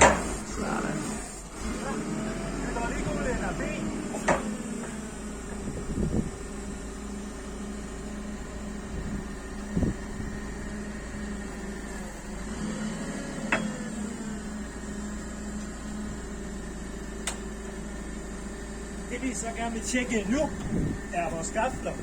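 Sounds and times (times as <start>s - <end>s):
short clunks: 0.0s - 0.5s, 4.1s - 5.7s, 13.4s - 14.1s, 17.2s - 17.5s
forklift engine humming: 0.0s - 22.0s.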